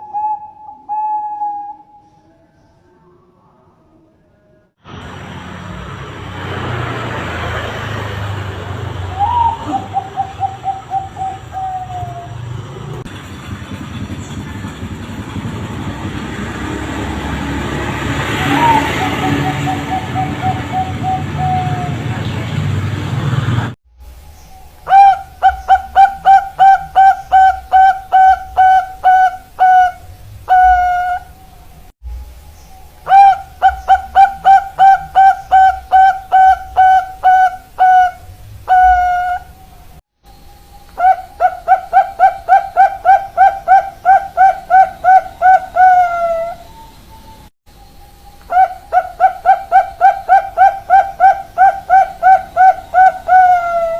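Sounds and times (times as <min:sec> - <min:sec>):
dove cooing: 0:00.0 - 0:02.0, 0:09.1 - 0:13.0, 0:18.4 - 0:22.2, 0:24.9 - 0:31.5, 0:33.0 - 0:39.9, 0:40.9 - 0:47.4, 0:48.5 - 0:53.9
vehicle passing by: 0:04.8 - 0:23.8
birdsong: 0:08.9 - 0:16.8, 0:18.2 - 0:22.7, 0:24.1 - 0:53.9.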